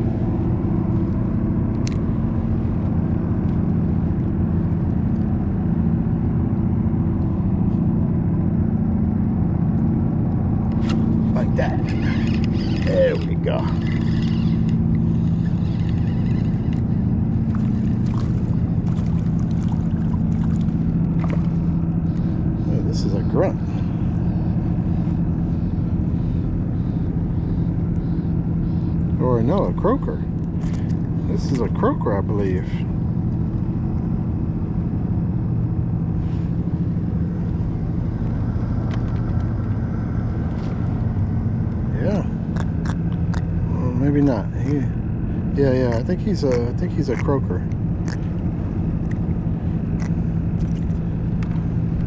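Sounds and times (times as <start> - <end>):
low motor hum: 0.0 - 52.0.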